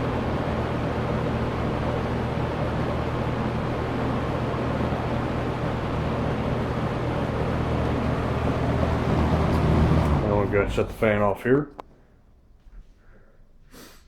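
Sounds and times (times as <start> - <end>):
box fan air rush: 0.0 - 11.2
low motor hum: 0.0 - 12.9.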